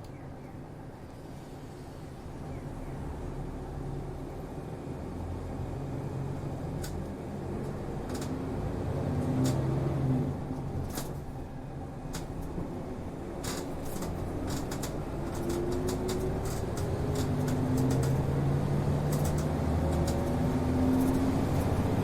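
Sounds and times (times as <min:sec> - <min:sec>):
bus engine accelerating: 0:00.0 - 0:22.0
road noise: 0:00.0 - 0:22.0
cabin clicks and rattles: 0:13.4 - 0:18.4.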